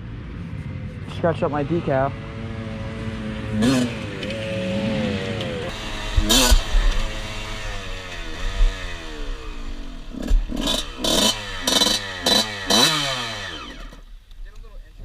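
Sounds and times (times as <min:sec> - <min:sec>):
dirt bike engine revving: 0:01.0 - 0:14.1.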